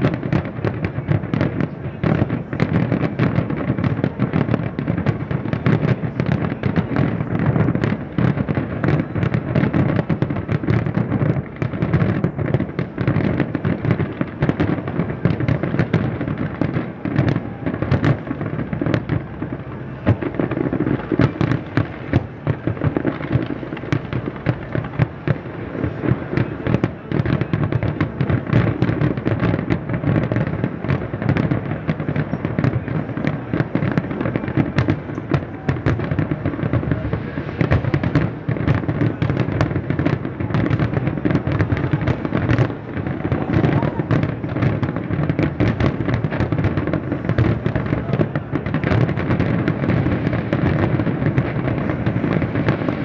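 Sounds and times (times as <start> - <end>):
fireworks barrage bangs and crackle: 0.0 - 53.0.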